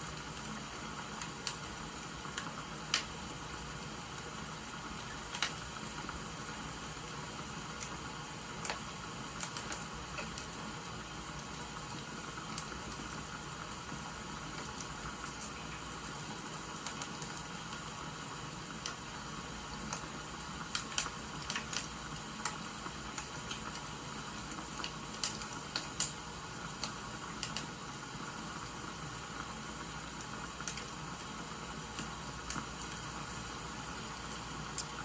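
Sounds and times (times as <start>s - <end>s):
steady hiss: 0.0s - 35.0s
wood fire crackling: 0.0s - 35.0s.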